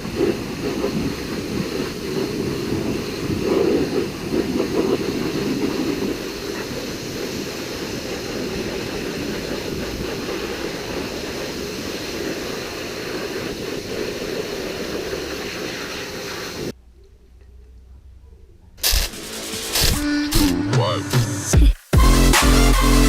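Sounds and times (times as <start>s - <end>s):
water spraying hard: 0.0s - 16.8s, 18.8s - 20.6s
faint low rumble: 16.7s - 19.0s.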